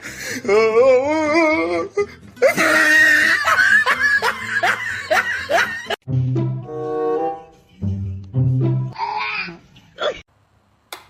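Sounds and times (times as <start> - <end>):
music: 0.0 - 10.2
person laughing hard: 2.4 - 6.0.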